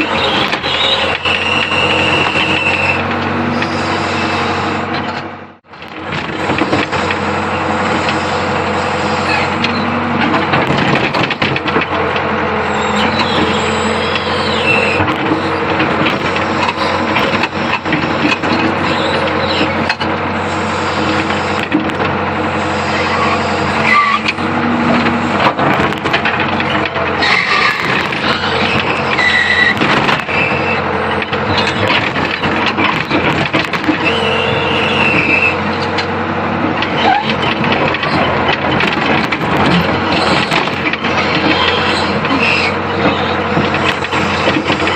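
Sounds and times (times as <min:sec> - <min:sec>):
short high squeals: 0:00.0 - 0:04.9, 0:07.0 - 0:10.0, 0:12.6 - 0:15.7, 0:22.5 - 0:24.4, 0:26.7 - 0:32.5, 0:33.9 - 0:35.9, 0:41.5 - 0:43.5
excavator engine droning: 0:00.0 - 0:44.9.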